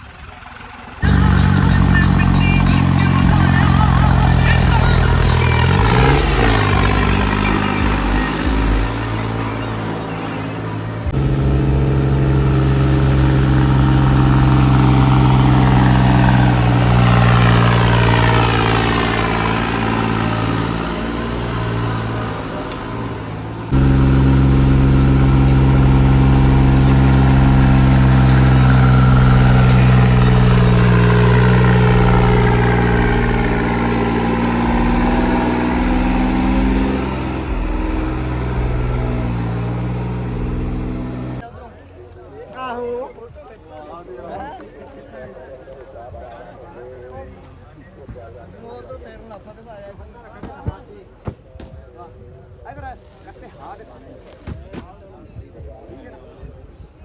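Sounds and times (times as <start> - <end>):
vehicle engine running: 0.0 - 41.4.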